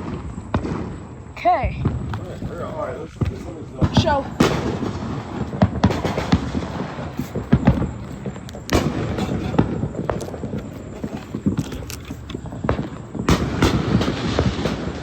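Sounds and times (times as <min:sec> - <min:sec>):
fireworks popping and banging: 0:00.0 - 0:15.0.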